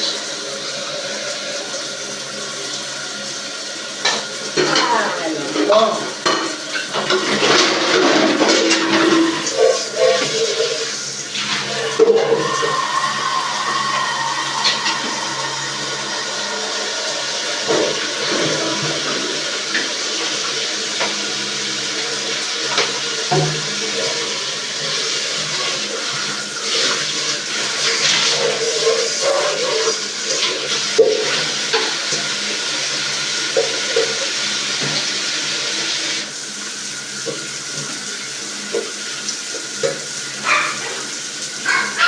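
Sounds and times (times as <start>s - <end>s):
running water: 0.0s - 42.0s
dishes and cutlery clattering: 4.1s - 10.8s
running water rushing: 8.2s - 23.2s
low even hum: 11.4s - 19.7s.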